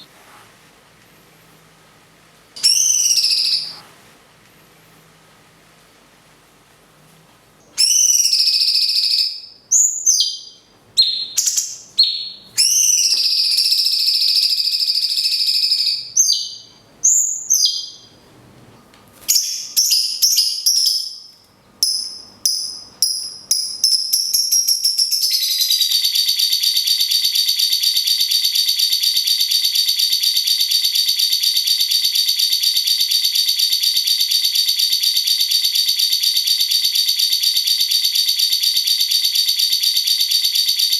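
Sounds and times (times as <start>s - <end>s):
bird rattling trill: 2.6s - 3.8s
bird whistling calls: 2.6s - 3.8s, 7.8s - 18.1s.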